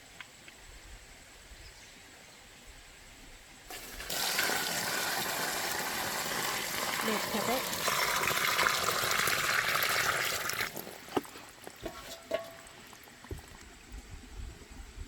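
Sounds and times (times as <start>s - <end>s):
water pouring: 3.7s - 13.7s.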